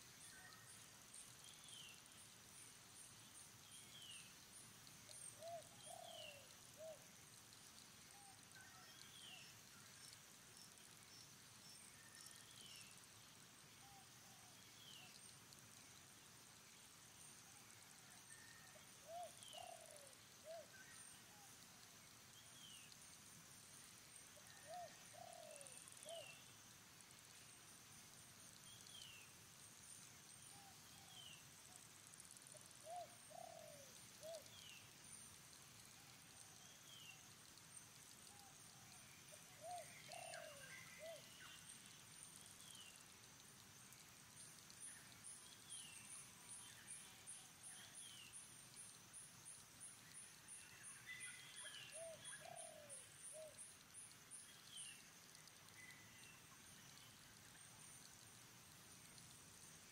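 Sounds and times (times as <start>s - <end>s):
low cooing bird call: 39.6s - 41.3s, 51.9s - 53.5s.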